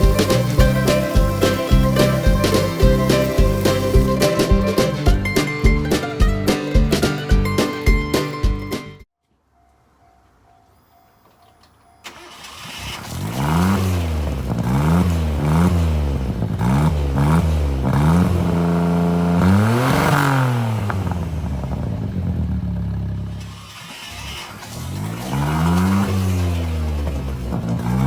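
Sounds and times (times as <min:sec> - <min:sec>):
car engine revving: 0:00.0 - 0:05.5, 0:12.1 - 0:28.0
car engine idling: 0:00.0 - 0:07.6, 0:12.0 - 0:28.0.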